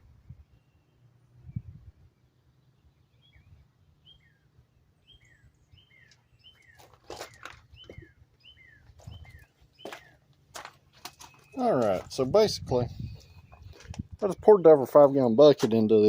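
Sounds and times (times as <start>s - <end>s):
songbird chirping: 0.0s - 16.0s.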